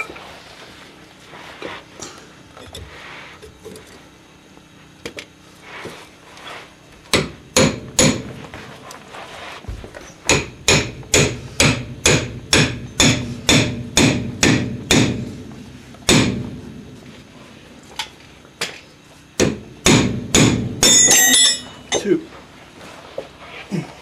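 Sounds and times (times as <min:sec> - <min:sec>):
hammer blows on metal: 0:19.4 - 0:22.1.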